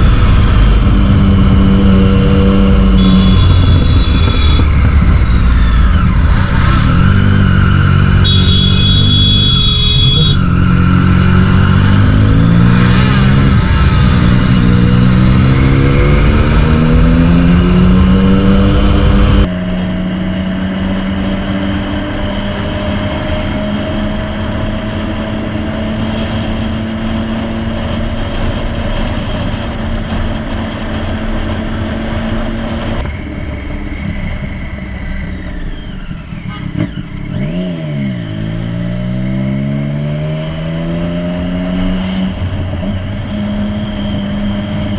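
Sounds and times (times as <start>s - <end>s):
wind noise: 0.0s - 8.4s
motorcycle engine revving: 0.0s - 44.9s.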